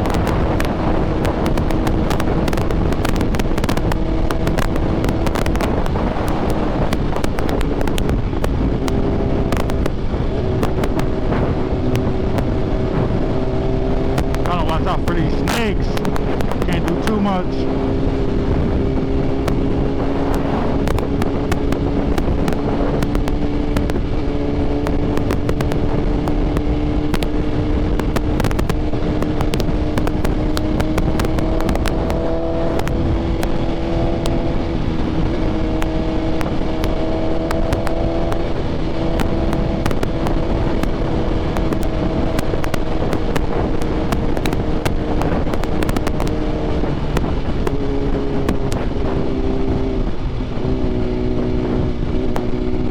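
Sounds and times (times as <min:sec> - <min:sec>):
motorcycle engine cruising: 0:00.0 - 0:52.9
wind rushing over microphone: 0:00.0 - 0:52.9.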